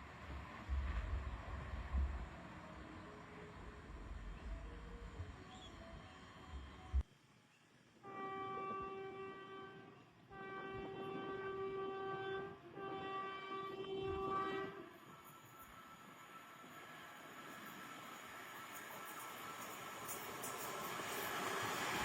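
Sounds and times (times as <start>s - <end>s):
train horn blasts: 8.0s - 17.3s.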